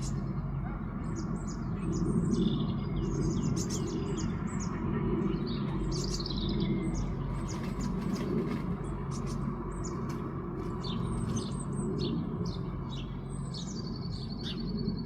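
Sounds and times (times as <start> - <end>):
songbird chirping: 0.0 - 15.0
steady low rumble: 0.0 - 15.0.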